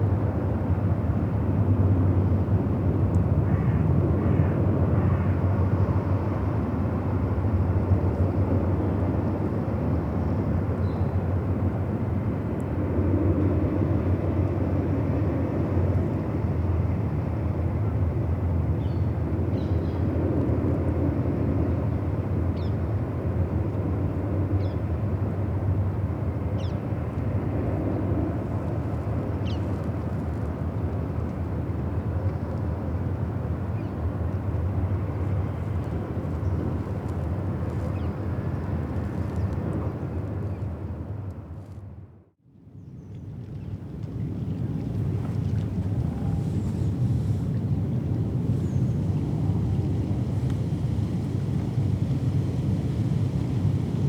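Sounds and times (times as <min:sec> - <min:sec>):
riverside ambience rumble: 0:00.1 - 0:42.2, 0:43.8 - 0:54.0.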